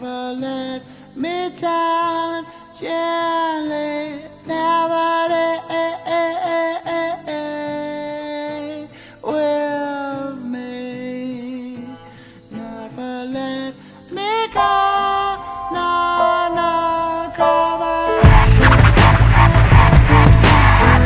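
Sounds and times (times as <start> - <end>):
person singing long notes: 12.6 - 21.0.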